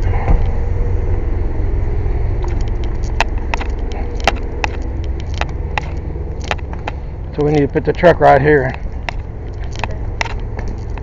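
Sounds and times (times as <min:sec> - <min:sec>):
engine rumbling: 0:00.0 - 0:11.0
sharp clicks and taps: 0:02.4 - 0:08.1, 0:08.7 - 0:11.0.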